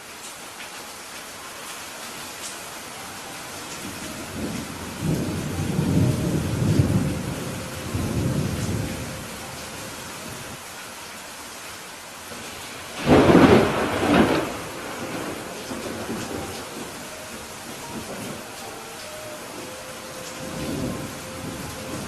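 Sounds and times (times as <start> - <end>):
steady rain hissing: 0.0 - 22.0
thunder rumbling: 3.8 - 10.6, 12.9 - 22.0
sharp thunderclap: 13.0 - 16.9.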